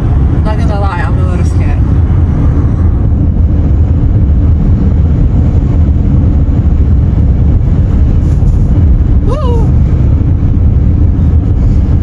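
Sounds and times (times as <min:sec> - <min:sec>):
car driving on highway: 0:00.0 - 0:12.0.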